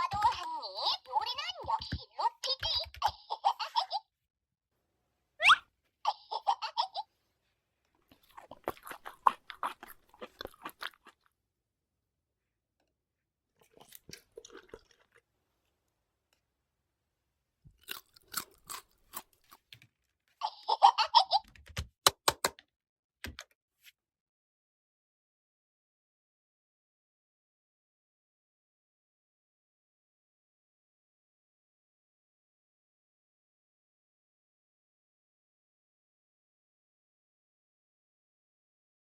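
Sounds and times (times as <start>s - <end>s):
high toy-voice chirps: 5.4s - 6.5s
crunching and clicking: 17.7s - 20.1s.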